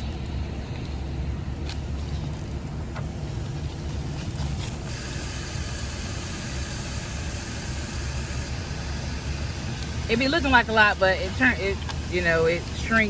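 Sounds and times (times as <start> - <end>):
camp stove low rumble: 0.0 - 13.0.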